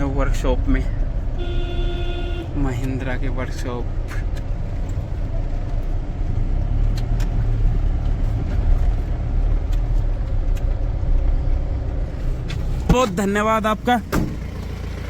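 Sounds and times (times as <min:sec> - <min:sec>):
vehicle engine rumble from inside: 0:00.0 - 0:15.0.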